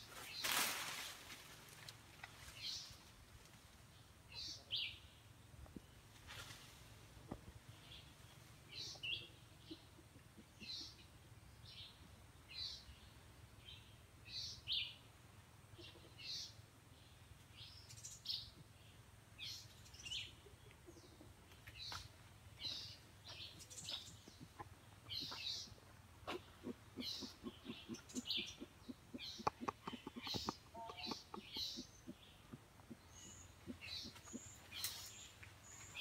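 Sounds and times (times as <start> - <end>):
birds chirping: 7.3 - 15.0, 15.8 - 36.0.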